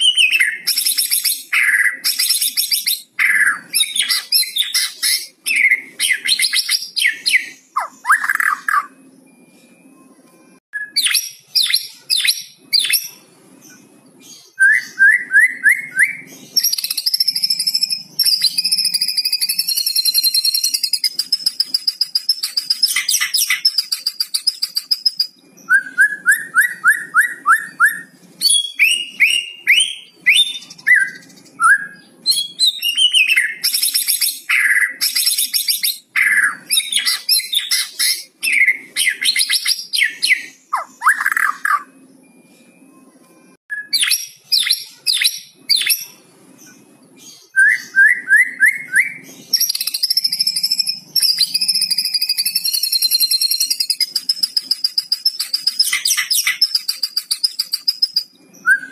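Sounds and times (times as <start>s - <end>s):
bird singing varied whistles: 14.4s - 42.0s, 47.4s - 58.9s.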